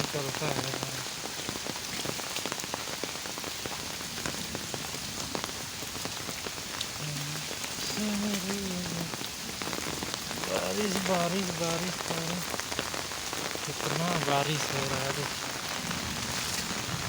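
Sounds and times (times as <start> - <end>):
heavy rain falling: 0.0 - 17.0
raindrops ticking: 0.0 - 17.0.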